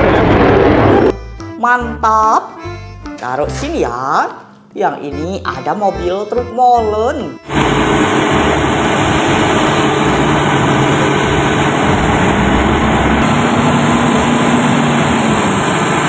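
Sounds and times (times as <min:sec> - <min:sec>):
truck engine rumbling: 0:00.0 - 0:01.5, 0:07.4 - 0:16.0.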